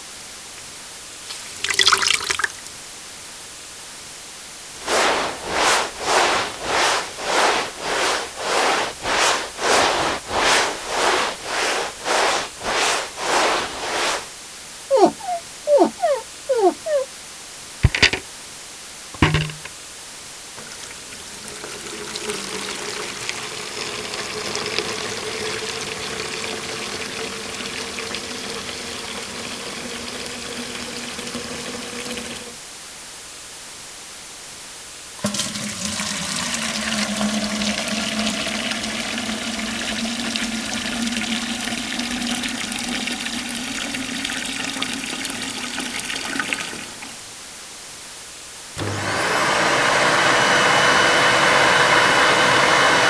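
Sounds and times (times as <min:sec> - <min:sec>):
water rushing with hum: 0:04.8 - 0:14.3, 0:14.9 - 0:17.1.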